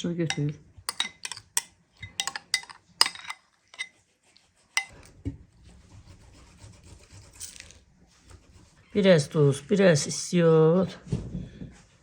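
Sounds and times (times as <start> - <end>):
spoon clinking against dishes: 0.0 - 3.9, 4.8 - 5.1.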